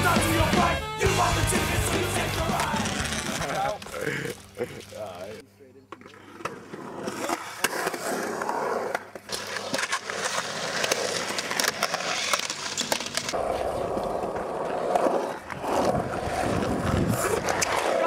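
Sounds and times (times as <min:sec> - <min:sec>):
skateboard wheels rolling on concrete: 0:00.0 - 0:18.0.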